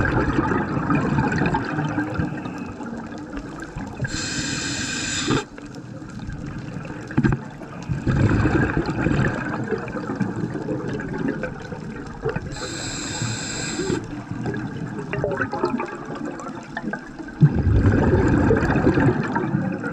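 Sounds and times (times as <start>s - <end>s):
underwater bubbling: 0.0s - 19.9s
high steady whine: 4.1s - 5.5s.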